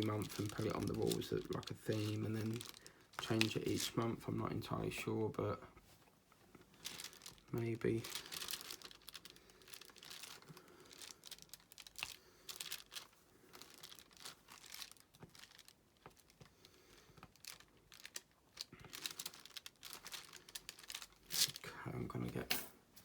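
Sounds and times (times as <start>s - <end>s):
small clicks and rustles: 0.0s - 4.0s, 5.8s - 23.0s.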